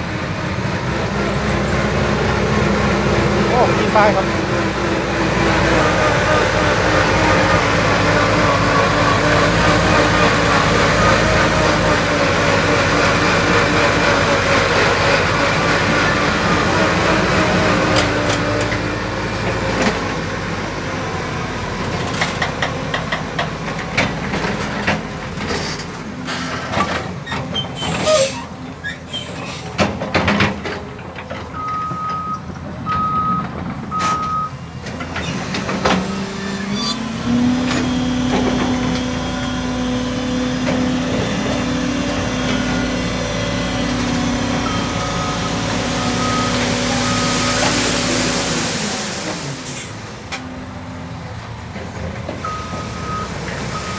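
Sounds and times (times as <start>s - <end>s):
truck engine running: 0.0s - 27.3s, 29.9s - 53.9s
knocks and clatter: 29.8s - 31.6s
reversing beeper beeps: 31.6s - 34.6s, 44.6s - 48.0s, 52.4s - 53.9s.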